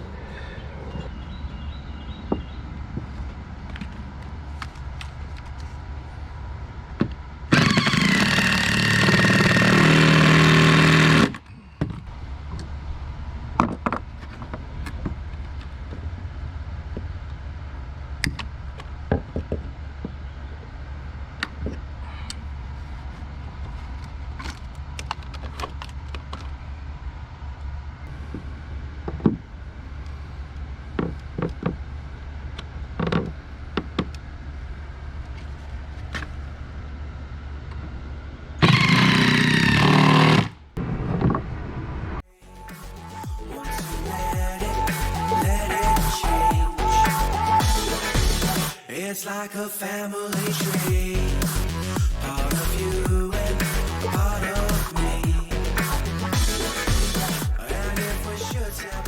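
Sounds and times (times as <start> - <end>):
power tool motor running: 7.5 - 11.4, 38.6 - 40.6.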